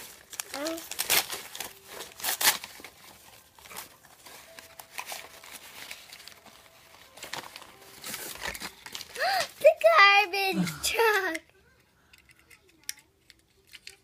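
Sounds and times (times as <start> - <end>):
packaging crinkling and tearing: 0.0 - 11.2.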